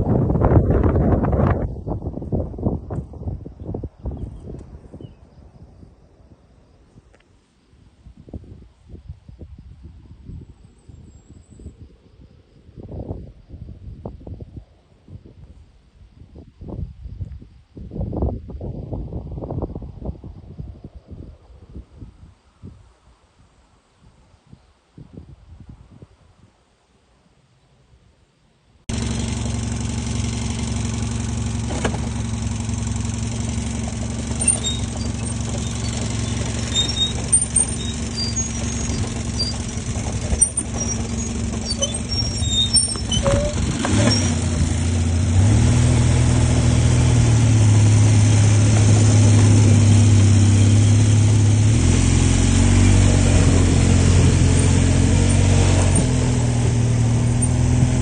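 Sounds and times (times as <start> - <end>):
atv engine running: 28.9 - 58.0.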